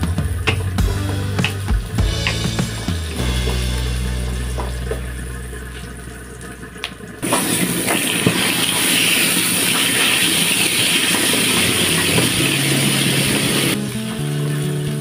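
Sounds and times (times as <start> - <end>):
chicken sizzling in hot oil: 7.0 - 15.0.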